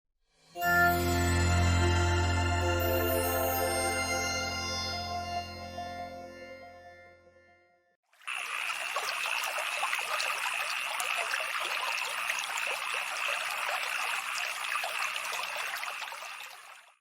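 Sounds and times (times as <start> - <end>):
high-pitched tone: 0.6 - 7.6
water trickling and splashing: 8.1 - 17.0.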